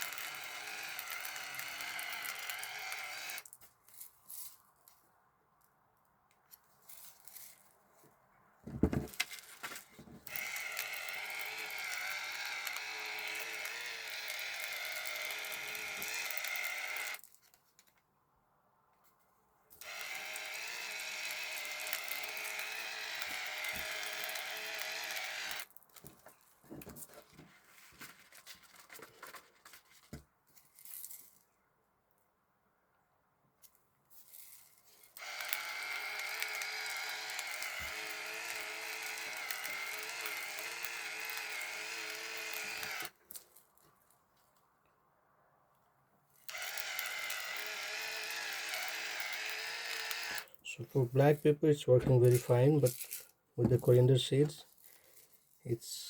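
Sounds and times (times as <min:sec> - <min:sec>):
electric spice grinder whining: 0:00.0 - 0:03.5, 0:09.0 - 0:17.2, 0:19.8 - 0:25.7, 0:35.2 - 0:43.2, 0:46.5 - 0:50.6.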